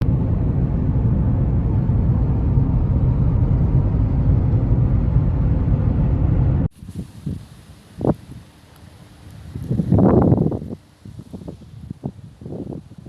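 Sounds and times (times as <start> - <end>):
loud low rumble: 0.0 - 6.7.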